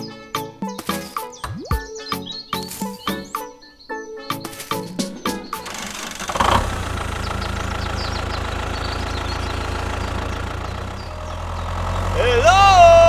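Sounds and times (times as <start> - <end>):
tractor engine starting and idling: 4.6 - 13.0.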